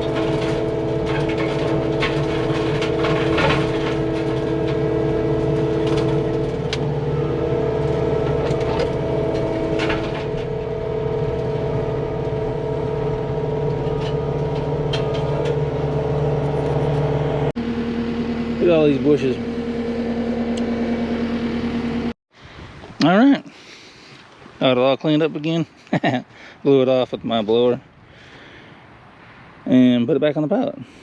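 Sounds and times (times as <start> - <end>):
brush cutter mulching brush: 0.0 - 17.5, 18.3 - 21.9
diesel engine running under load: 0.0 - 22.8.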